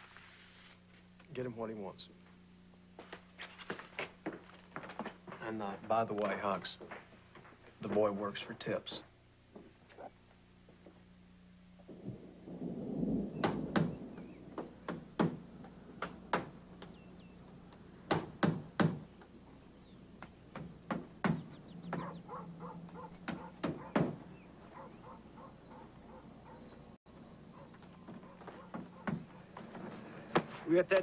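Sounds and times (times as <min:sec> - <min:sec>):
birds chirping faintly: 0:13.0 - 0:31.0
hammers striking nails: 0:14.9 - 0:15.4, 0:18.1 - 0:19.1.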